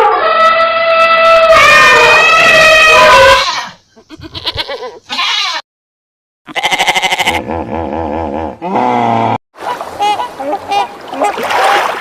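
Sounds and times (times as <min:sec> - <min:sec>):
farm animal bleating: 0:00.5 - 0:05.6, 0:06.5 - 0:07.4.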